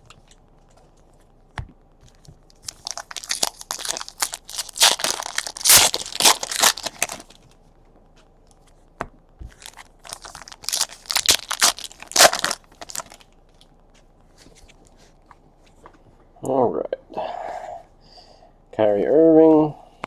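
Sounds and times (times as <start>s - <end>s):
foil wrappers tearing and crinkling: 2.5s - 7.4s, 9.5s - 13.3s.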